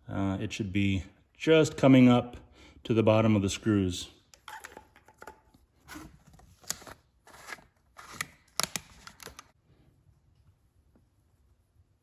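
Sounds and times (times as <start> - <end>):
oil bottle and funnel handling: 4.3 - 9.5.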